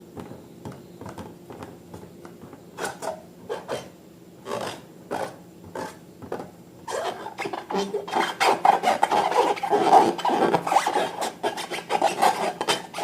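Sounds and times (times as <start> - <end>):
rubbing and scraping strokes: 6.9 - 13.0.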